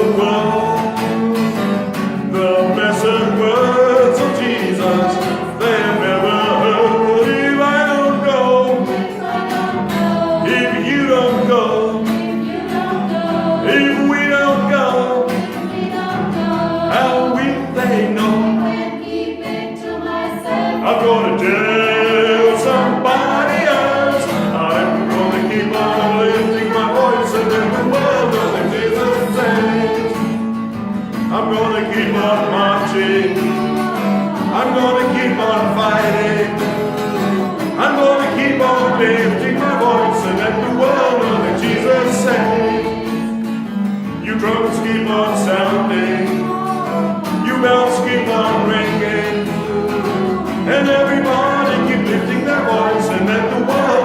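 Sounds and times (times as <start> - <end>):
choir singing gospel song: 0.0 - 54.0
instrumental backing with guitar: 0.0 - 54.0.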